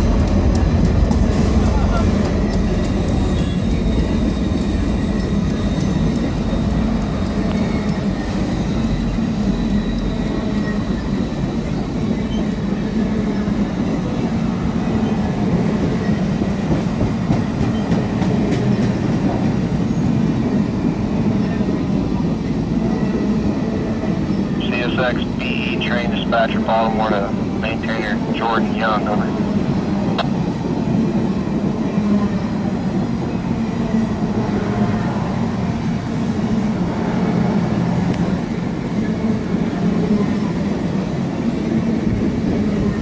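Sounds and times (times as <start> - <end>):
train wheels rumbling on rails: 0.0 - 24.6.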